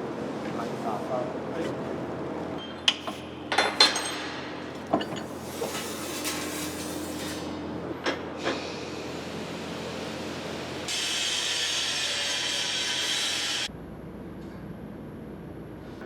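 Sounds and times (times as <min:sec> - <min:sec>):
sharp metal knocks and clanks: 0:02.6 - 0:05.3.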